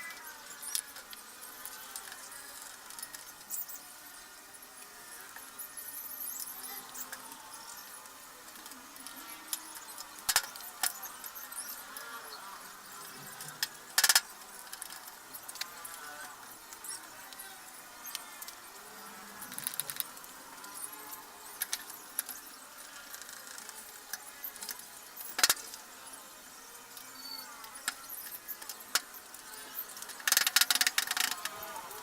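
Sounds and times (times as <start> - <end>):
rapid clicks: 12.4 - 16.1, 21.6 - 25.8, 29.7 - 32.0.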